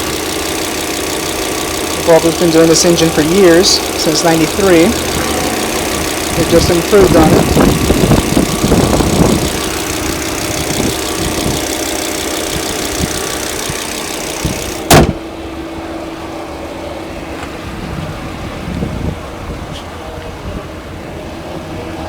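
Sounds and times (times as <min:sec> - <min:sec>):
car engine idling: 0:00.0 - 0:22.0
loud thump: 0:14.9 - 0:15.2.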